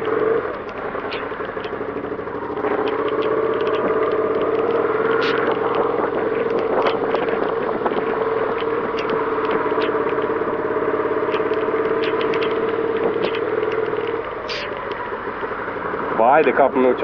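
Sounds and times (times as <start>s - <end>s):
motorcycle engine running: 0.0s - 17.0s
rain and spray ticks: 0.0s - 17.0s.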